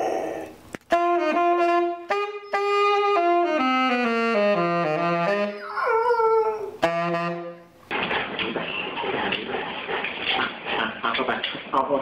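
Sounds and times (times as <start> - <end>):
saxophone playing held notes: 0.9 - 5.6, 6.8 - 7.7.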